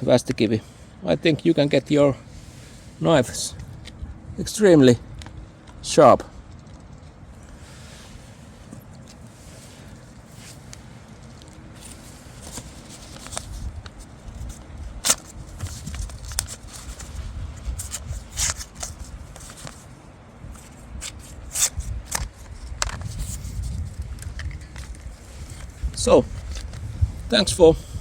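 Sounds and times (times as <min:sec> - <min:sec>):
wind buffeting microphone: 0:02.2 - 0:08.3, 0:13.3 - 0:19.5, 0:20.4 - 0:28.0
handling clicks and rustles: 0:05.2 - 0:27.4.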